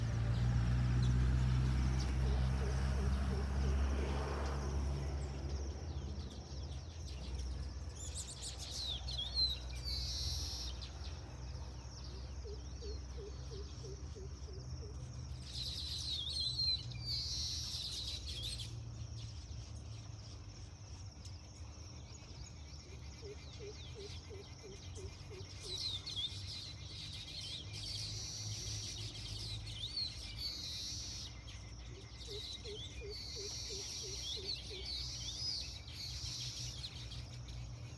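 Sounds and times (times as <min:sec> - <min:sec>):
birds twittering chirps: 0:00.0 - 0:37.9.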